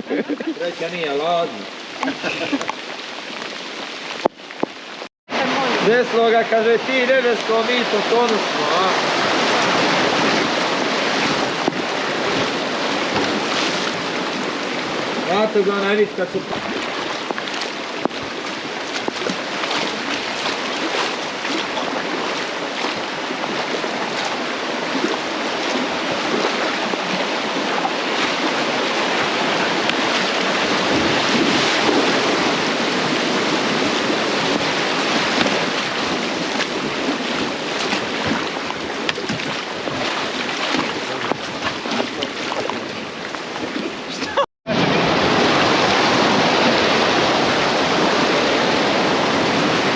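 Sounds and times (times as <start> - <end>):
rushing river water: 0.0 - 49.9
wind buffeting microphone: 16.2 - 49.9.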